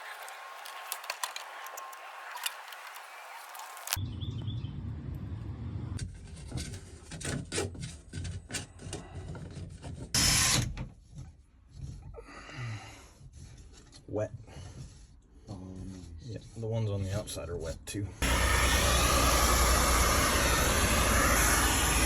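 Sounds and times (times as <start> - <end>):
scraping inside vent duct: 18.2 - 22.0.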